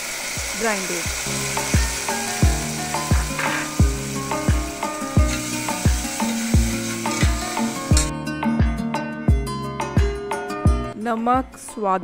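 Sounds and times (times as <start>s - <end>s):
food sizzling in a pan: 0.0s - 8.1s
background music with beat: 1.8s - 11.0s.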